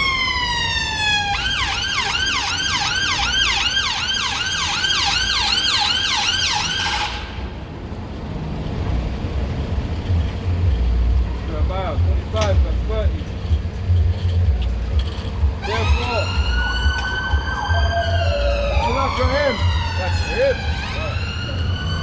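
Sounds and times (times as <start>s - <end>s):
siren yelping: 0.0s - 7.3s, 15.6s - 22.0s
low traffic rumble: 0.0s - 22.0s.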